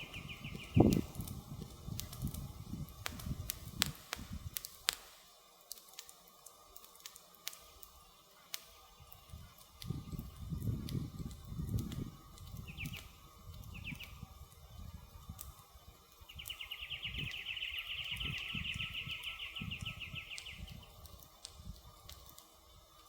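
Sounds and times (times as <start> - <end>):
small bird trilling: 0.0 - 1.1, 16.3 - 20.7
campfire crackling and popping: 0.0 - 23.0
low rumbles of burning wood: 0.0 - 23.0.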